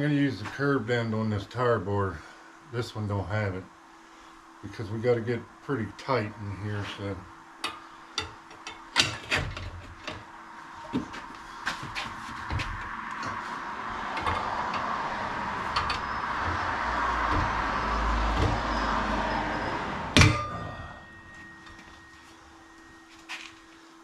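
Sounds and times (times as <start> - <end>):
faint steady hum: 0.0 - 24.0
loud metal clank: 20.1 - 22.1.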